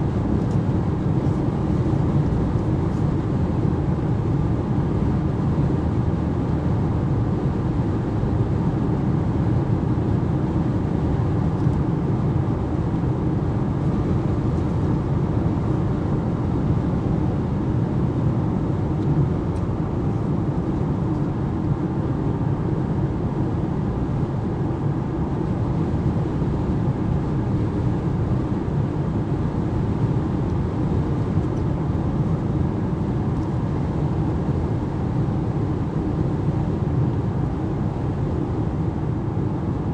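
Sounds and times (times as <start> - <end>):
car cabin road and wind noise: 9.8 - 39.9.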